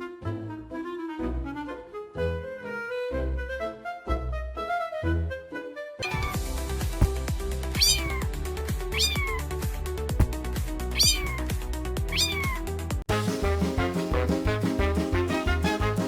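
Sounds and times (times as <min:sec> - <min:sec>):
cat meowing: 0:06.0 - 0:06.4, 0:07.8 - 0:08.3, 0:09.0 - 0:09.5, 0:11.0 - 0:11.5, 0:12.1 - 0:12.7.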